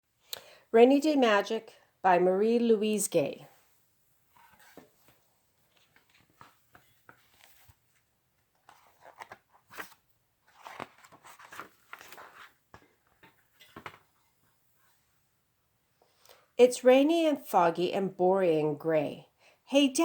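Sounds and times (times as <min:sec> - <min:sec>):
book pages rustling: 0:04.3 - 0:15.1.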